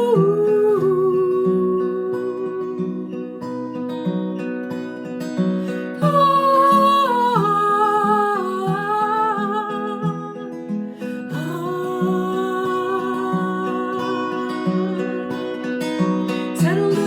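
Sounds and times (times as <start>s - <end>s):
acoustic guitar strumming: 0.0s - 17.0s
person singing wordless melody: 11.3s - 17.0s.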